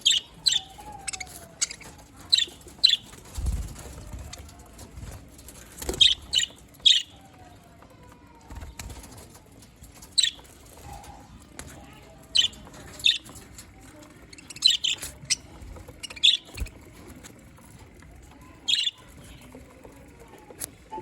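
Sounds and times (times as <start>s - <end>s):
budgerigars chirping: 0.0s - 3.1s, 14.4s - 16.7s.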